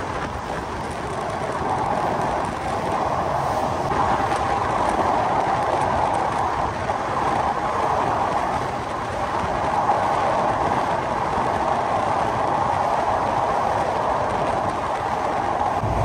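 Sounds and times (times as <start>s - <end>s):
train rumble and rail noise: 0.0s - 16.0s.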